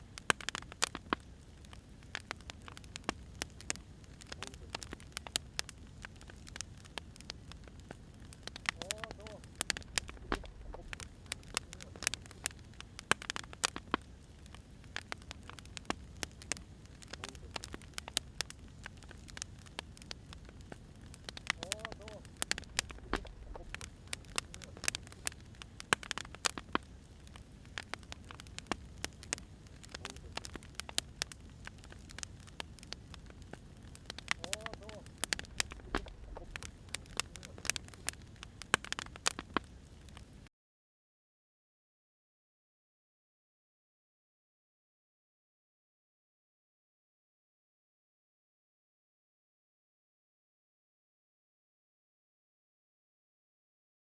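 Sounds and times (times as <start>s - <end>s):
firewood crackling and popping: 0.0s - 40.5s
soft low rumble: 7.3s - 12.9s, 22.2s - 25.9s, 26.8s - 38.5s
low steady rumble: 9.5s - 11.6s, 22.4s - 25.8s, 35.1s - 37.2s.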